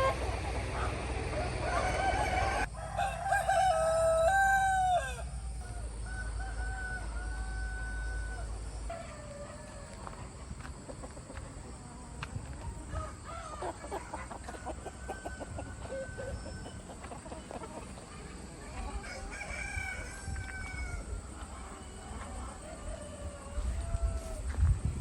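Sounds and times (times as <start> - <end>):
chickens clucking: 0.0 - 25.0
rooster crowing: 1.3 - 9.8, 19.0 - 21.4.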